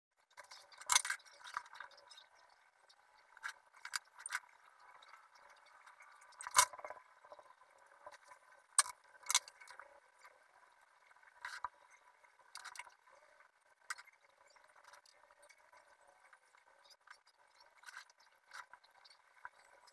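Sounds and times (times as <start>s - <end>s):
small objects clicking on a desk: 0.4s - 2.2s, 6.3s - 7.0s, 8.8s - 9.8s.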